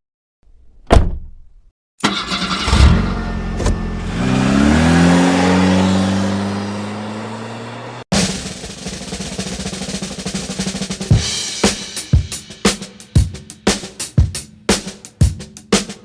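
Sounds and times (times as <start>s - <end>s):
thump: 0.8s - 1.6s, 3.6s - 3.9s
car engine starting and revving: 2.0s - 8.1s.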